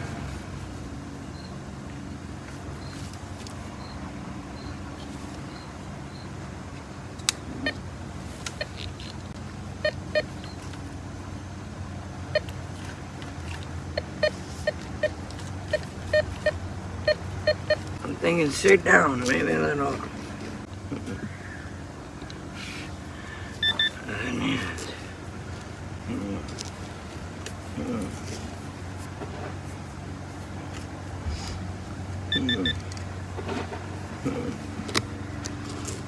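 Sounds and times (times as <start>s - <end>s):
low engine drone: 0.0s - 36.0s
metal detector beeps: 3.8s - 4.0s, 4.6s - 4.8s, 5.5s - 6.3s, 9.8s - 10.7s, 12.3s - 12.5s, 13.9s - 18.0s, 23.6s - 24.1s, 32.3s - 32.8s.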